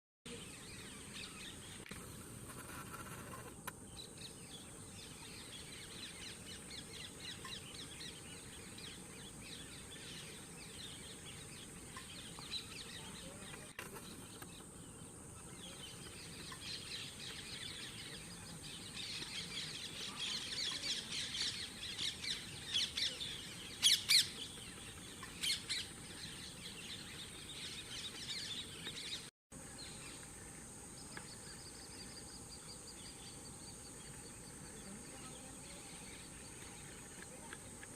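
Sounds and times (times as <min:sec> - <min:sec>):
birds chirping and twittering: 0:00.3 - 0:37.9
faint high hiss: 0:00.3 - 0:37.9
sharp bird calls: 0:15.4 - 0:29.3.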